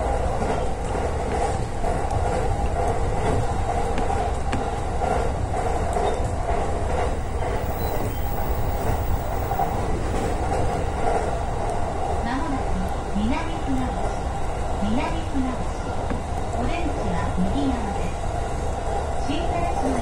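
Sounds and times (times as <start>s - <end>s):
train wheels running on rail: 0.0s - 20.0s.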